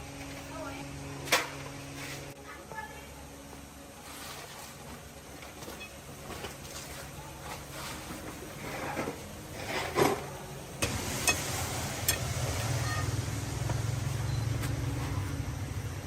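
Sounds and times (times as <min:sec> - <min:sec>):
handling and scraping noises: 0:00.1 - 0:02.4, 0:04.0 - 0:10.4.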